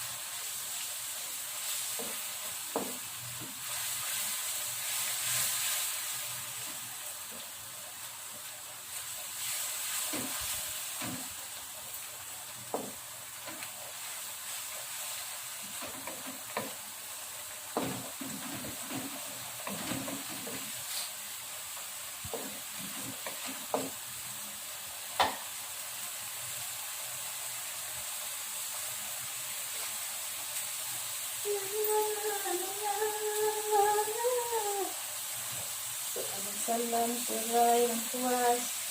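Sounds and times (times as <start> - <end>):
paste sizzling in hot oil: 0.0 - 38.9
spatula knocking against pan: 17.8 - 20.6, 22.3 - 24.0.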